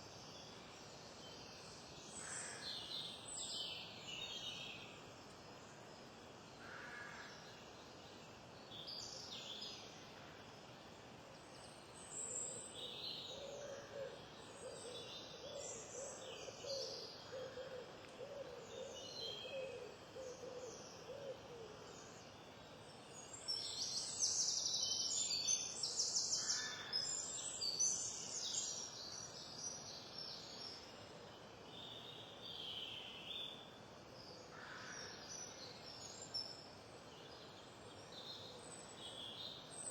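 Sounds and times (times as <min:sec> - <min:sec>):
songbirds chirping and trilling: 0:11.5 - 0:39.9.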